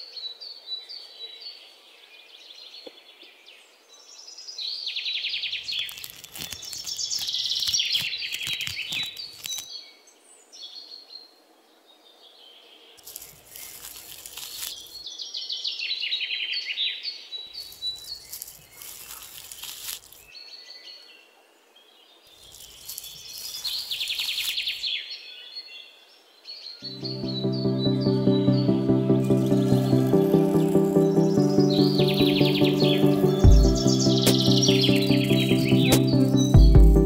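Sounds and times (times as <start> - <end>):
small birds chirping: 2.4 - 11.4, 12.0 - 21.3, 22.1 - 37.0
green stalks rustling: 5.6 - 9.7, 13.0 - 15.1, 17.5 - 20.3, 22.3 - 25.0.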